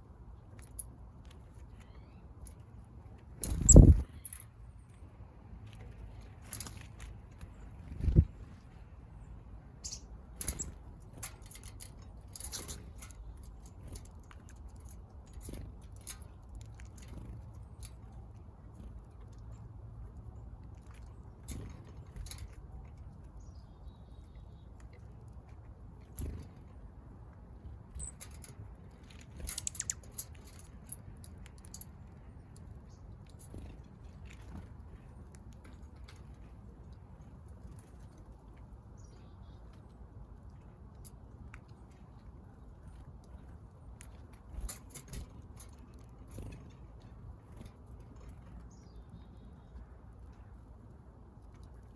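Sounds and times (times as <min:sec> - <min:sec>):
birds pecking at food: 0:00.4 - 0:04.4
birds pecking at seed: 0:00.4 - 0:04.4, 0:09.8 - 0:51.9.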